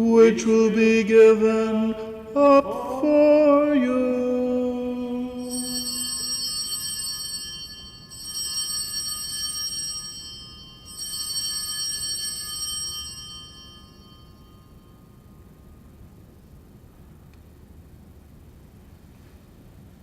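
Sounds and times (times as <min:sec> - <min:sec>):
altar bells ringing: 0:05.3 - 0:15.6.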